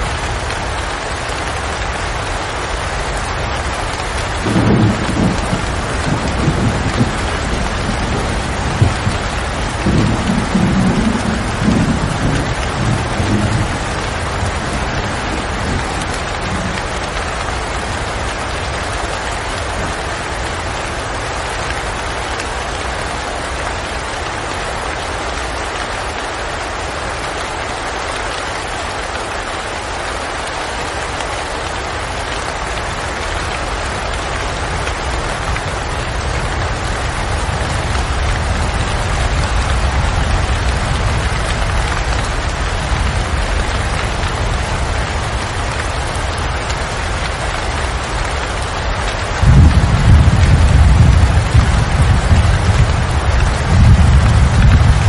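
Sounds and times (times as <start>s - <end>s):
heavy rain: 0.0s - 55.0s
thunder rumble: 4.1s - 18.4s, 46.8s - 55.0s.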